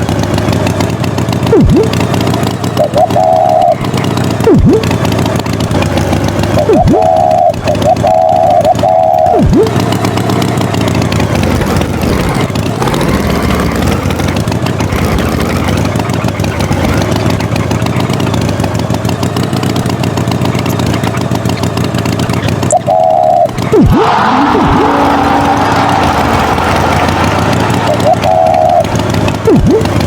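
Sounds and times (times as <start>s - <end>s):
motor engine running: 0.0s - 30.0s
short high-pitched tone: 2.8s - 4.9s, 6.6s - 9.8s, 22.7s - 25.2s.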